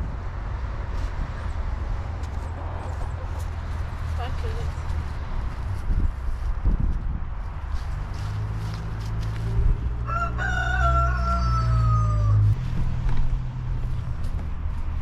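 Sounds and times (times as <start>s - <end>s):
rooster crowing: 10.0s - 12.6s.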